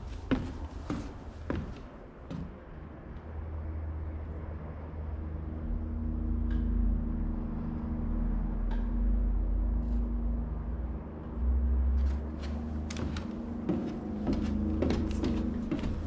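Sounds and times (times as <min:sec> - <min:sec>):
engine running: 0:05.7 - 0:16.0.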